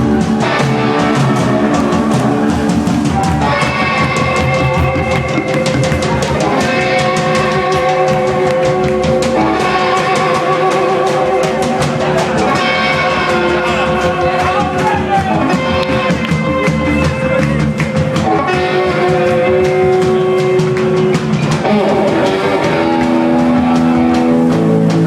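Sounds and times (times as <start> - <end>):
person singing: 0.0 - 16.2
drum kit beat: 0.0 - 25.0
electric guitars: 0.0 - 25.0.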